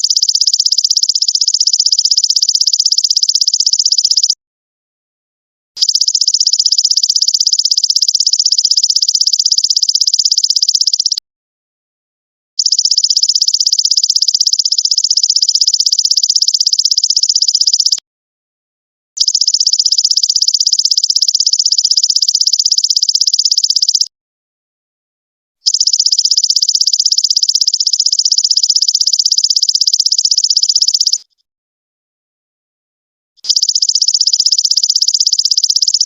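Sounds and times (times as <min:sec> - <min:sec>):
insect high-pitched trills: 0:19.3 - 0:24.0, 0:25.7 - 0:31.2, 0:33.5 - 0:36.0.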